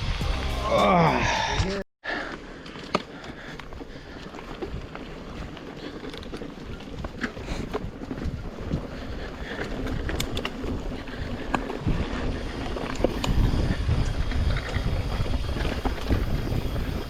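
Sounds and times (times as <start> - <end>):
bike clicks and rattles: 2.1 - 17.0
wind buffeting microphone: 3.8 - 17.0.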